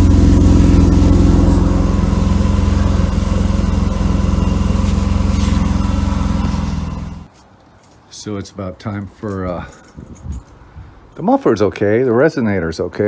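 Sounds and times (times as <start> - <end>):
car engine idling roughly: 0.0 - 7.3.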